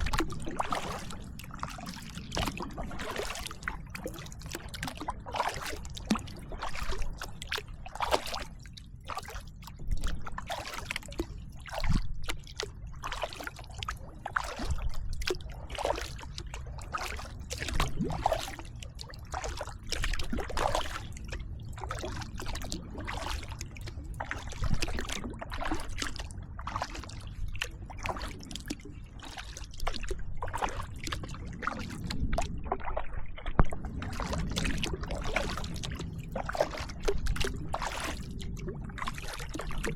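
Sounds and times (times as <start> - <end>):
steady low rumble: 0.0 - 10.5, 29.8 - 39.9
kayak paddle splashing: 0.0 - 39.9.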